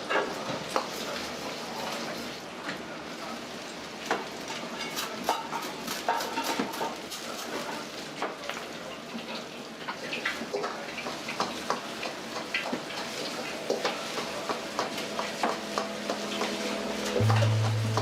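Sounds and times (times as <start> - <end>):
food sizzling in a wok: 0.0 - 18.0
music: 15.5 - 18.0
metal spatula striking wok: 17.2 - 18.0.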